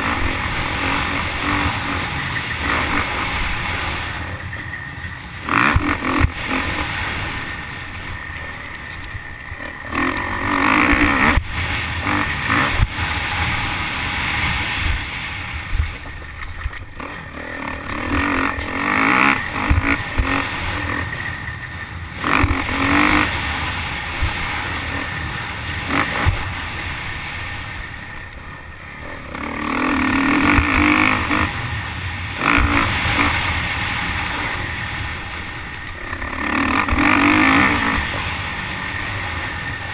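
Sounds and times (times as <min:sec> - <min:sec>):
motocross bike engine revving: 0:00.0 - 0:39.9
wind rushing over microphone: 0:09.2 - 0:28.2.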